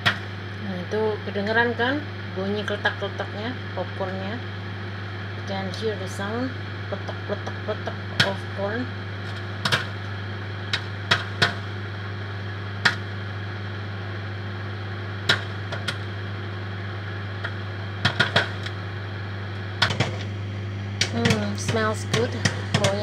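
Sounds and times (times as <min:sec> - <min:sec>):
popcorn popping: 0:00.0 - 0:00.7, 0:05.4 - 0:23.0
microwave oven humming: 0:00.0 - 0:23.0.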